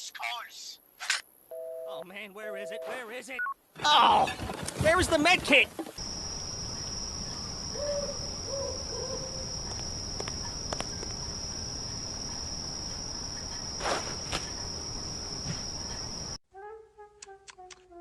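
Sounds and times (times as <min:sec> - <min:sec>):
background hiss: 0:04.9 - 0:16.4.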